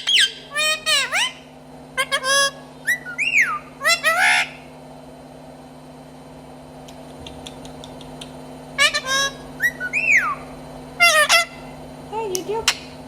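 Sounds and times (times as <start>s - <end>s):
parrot whistling and calling: 0.0s - 4.7s, 8.8s - 11.8s.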